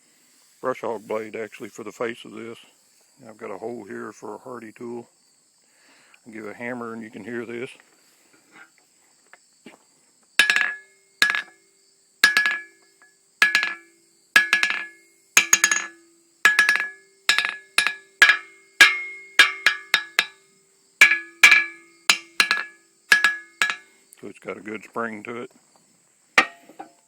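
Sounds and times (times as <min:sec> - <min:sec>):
hammer ringing on anvil: 0:10.4 - 0:11.6, 0:12.2 - 0:12.8, 0:13.4 - 0:20.4, 0:21.0 - 0:23.9.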